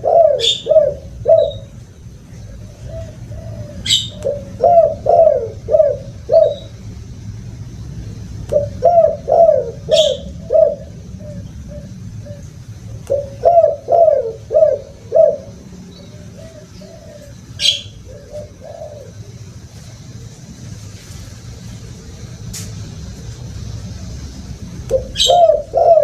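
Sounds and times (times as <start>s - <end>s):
dove cooing: 0.0s - 6.8s, 8.5s - 22.4s, 24.9s - 26.0s
low steady hum: 0.0s - 26.0s
high bird chirp: 15.9s - 19.0s, 25.0s - 26.0s.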